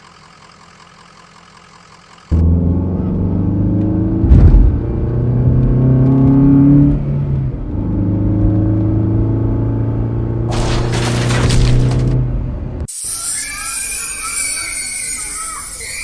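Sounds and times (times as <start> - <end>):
short thump: 4.2 - 4.8.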